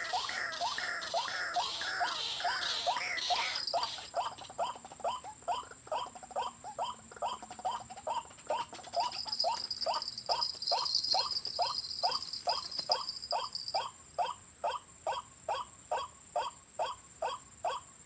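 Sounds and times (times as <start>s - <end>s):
waterhen calling: 0.0s - 4.7s.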